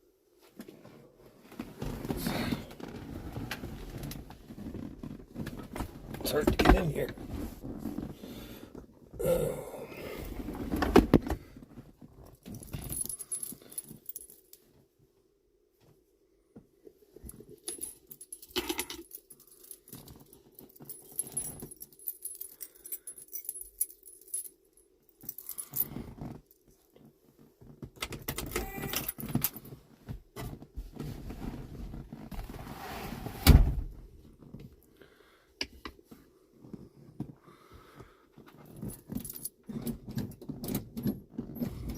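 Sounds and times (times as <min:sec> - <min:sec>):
keys jangling: 0:12.4 - 0:14.5, 0:17.6 - 0:24.6, 0:25.2 - 0:26.5.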